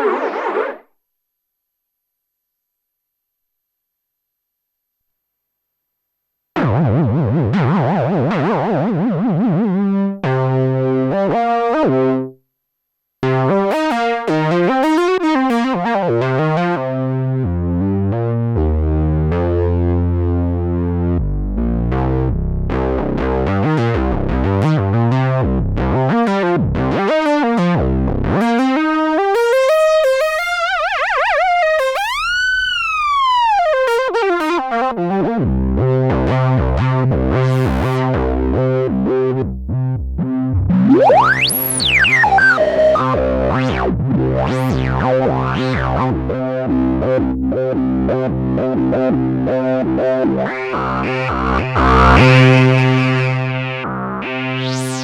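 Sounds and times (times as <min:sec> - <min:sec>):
synthesizer playing: 0:40.8 - 0:43.2, 0:50.5 - 0:55.0
low synth drone: 0:50.8 - 0:53.8.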